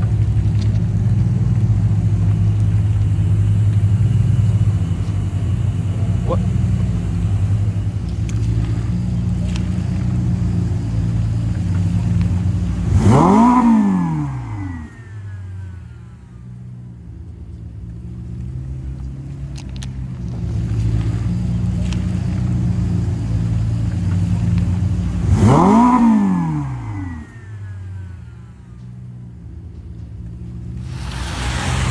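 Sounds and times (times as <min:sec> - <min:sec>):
car engines running: 0:00.0 - 0:31.9
car engine revving hard: 0:08.4 - 0:15.5, 0:24.7 - 0:27.9, 0:30.7 - 0:31.9.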